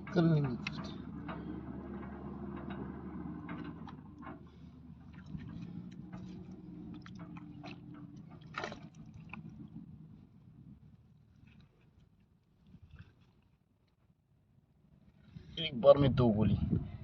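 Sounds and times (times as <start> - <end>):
low steady hum: 0.0 - 13.0
mud squelching: 3.8 - 10.1.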